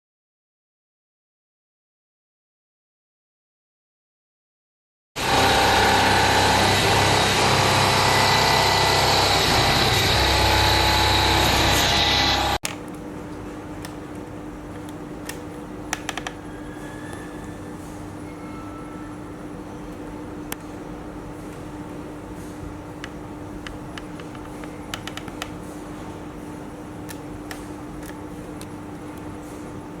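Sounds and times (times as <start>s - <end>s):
cutting noise: 5.2s - 12.6s
machine tool high whine: 5.2s - 12.6s.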